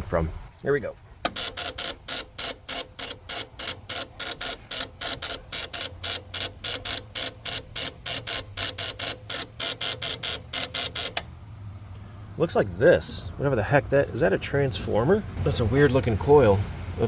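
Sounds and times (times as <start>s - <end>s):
starter solenoid rapid clicking: 1.2s - 11.3s.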